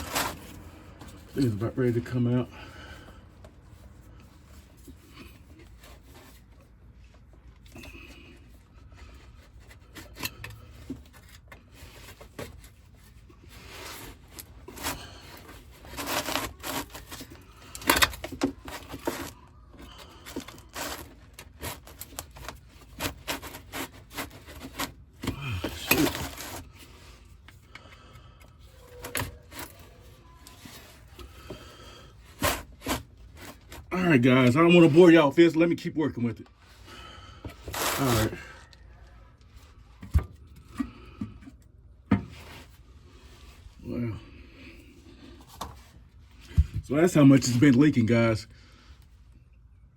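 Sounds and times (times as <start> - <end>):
tools scraping and clicking on metal: 0.0 - 1.7, 9.3 - 31.7.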